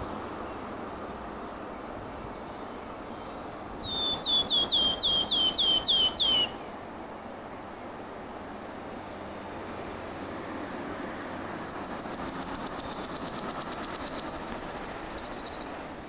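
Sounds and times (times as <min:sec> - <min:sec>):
songbird singing: 0:00.0 - 0:07.6, 0:11.7 - 0:16.0
steady background noise: 0:00.0 - 0:16.0.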